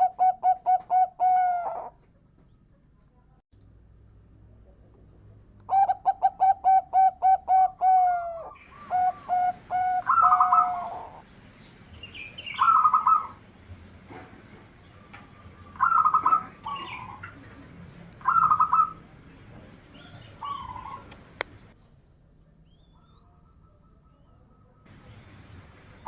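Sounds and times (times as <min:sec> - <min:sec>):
dove cooing: 0:00.0 - 0:02.0, 0:05.7 - 0:11.3, 0:12.3 - 0:13.4, 0:14.9 - 0:17.6, 0:18.2 - 0:21.7.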